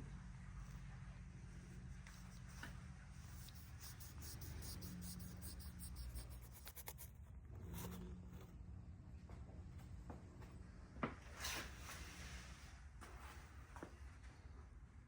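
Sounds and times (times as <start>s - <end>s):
scratchy rubbing: 3.2s - 8.4s.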